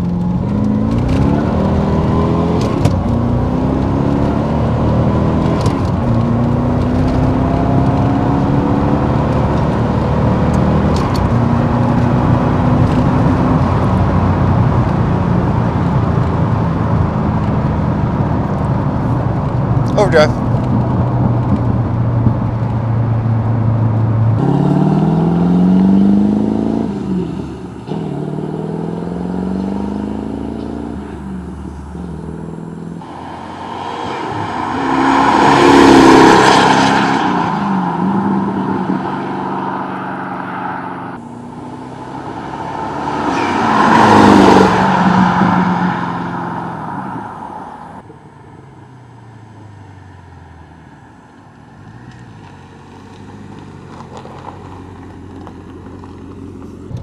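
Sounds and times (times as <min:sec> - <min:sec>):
car engine accelerating through gears: 0:00.0 - 0:48.1
loud rushing swells: 0:31.0 - 0:48.0.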